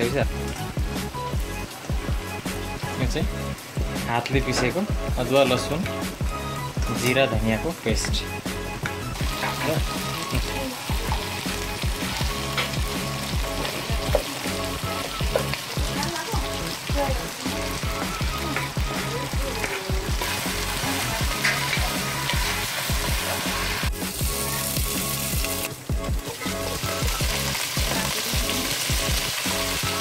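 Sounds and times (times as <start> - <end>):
background music: 0.0 - 30.0
chicken sizzling in a pot: 9.2 - 30.0.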